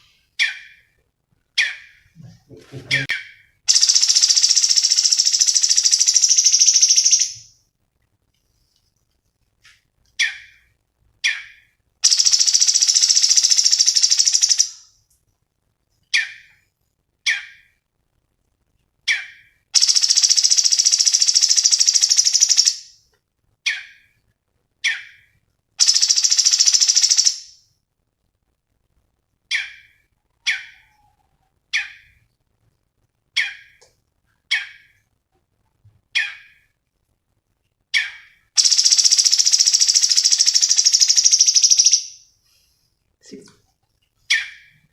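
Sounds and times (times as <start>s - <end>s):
sharp bird chip notes: 3.0s - 7.4s
loud buzzing bird trill: 3.7s - 7.4s, 12.1s - 14.7s, 38.6s - 42.1s.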